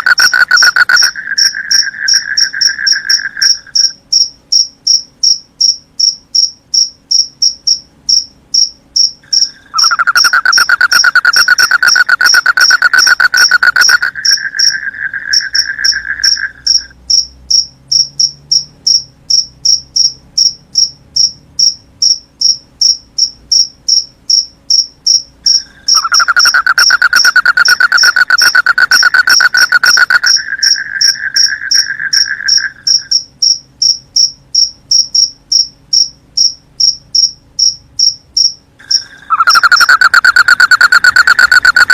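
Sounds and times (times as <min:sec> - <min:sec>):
crickets chirping: 0:00.0 - 0:41.9
low buzzing trill: 0:09.7 - 0:17.0.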